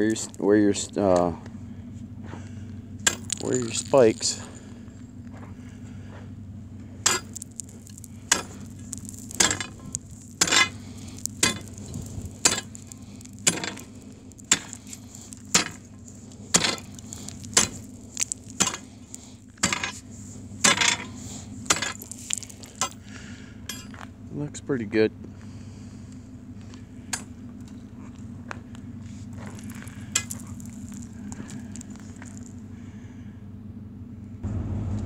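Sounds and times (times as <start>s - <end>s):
steady low hum: 0.0s - 35.0s
footsteps crunching on ice: 2.2s - 23.3s, 27.6s - 32.6s.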